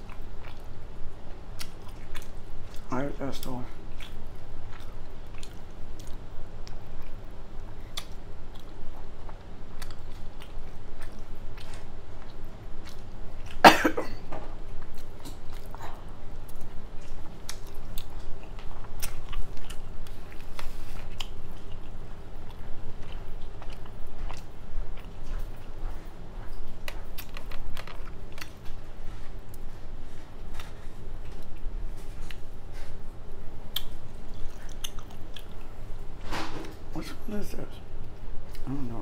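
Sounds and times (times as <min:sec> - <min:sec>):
person chewing food: 0:00.0 - 0:13.6, 0:14.6 - 0:36.1, 0:38.0 - 0:39.0
wet mouth clicks and smacks: 0:33.7 - 0:35.5.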